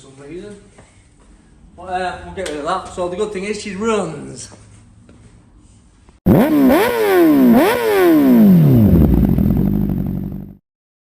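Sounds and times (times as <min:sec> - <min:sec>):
motorcycle engine revving: 0:06.3 - 0:10.6.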